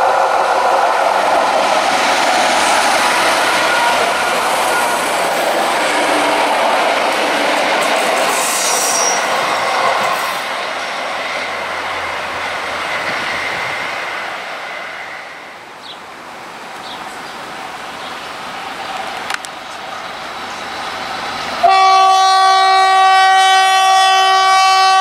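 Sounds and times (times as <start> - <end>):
train wheels rumbling on track: 0.0 - 25.0
high wheel squeal: 8.2 - 10.5.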